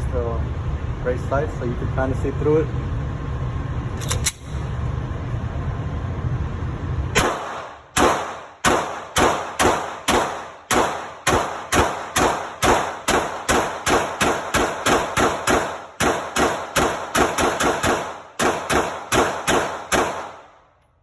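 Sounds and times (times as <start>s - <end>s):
ventilation rumble: 0.0s - 21.0s
pistol shots with echo: 7.2s - 20.7s.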